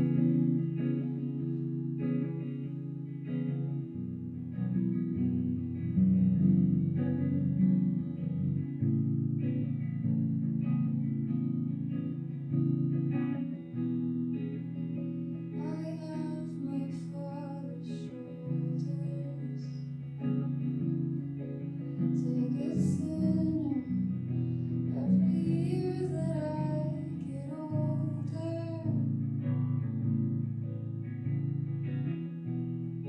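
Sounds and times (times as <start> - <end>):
guitar accompaniment: 0.0 - 33.0
person singing slow melody: 15.5 - 29.7.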